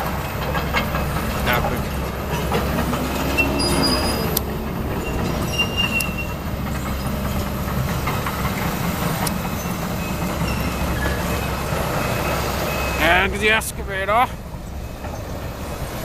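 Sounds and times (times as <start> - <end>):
metal clanks: 0.0 - 11.6
excavator diesel engine running: 0.0 - 16.0
high metallic squeaks: 0.6 - 7.6, 9.4 - 13.3.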